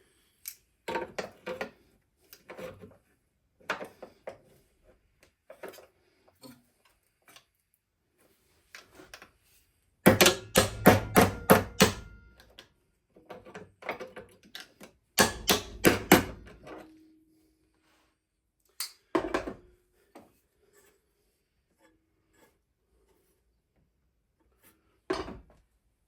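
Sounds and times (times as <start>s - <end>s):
hammer striking metal: 10.1s - 12.4s, 15.2s - 16.5s.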